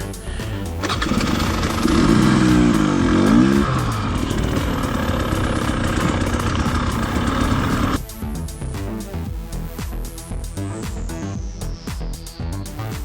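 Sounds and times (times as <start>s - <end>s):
dirt bike engine revving: 0.8s - 8.0s.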